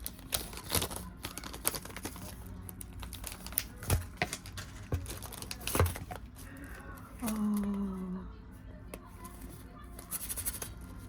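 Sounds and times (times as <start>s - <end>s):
plastic packets crinkling: 0.0s - 7.9s.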